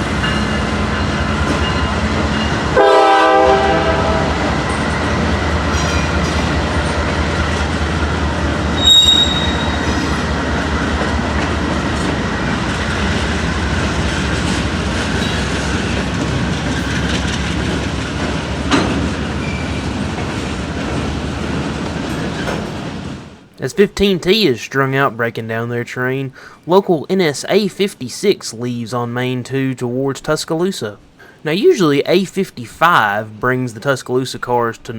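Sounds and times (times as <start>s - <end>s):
freight train rumbling: 0.0s - 34.9s
train wheel squeal: 8.7s - 10.3s, 15.1s - 16.1s, 18.7s - 20.0s.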